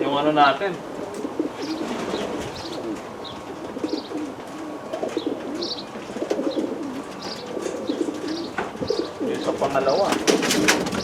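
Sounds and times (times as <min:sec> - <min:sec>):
pigeons cooing: 0:00.7 - 0:11.0.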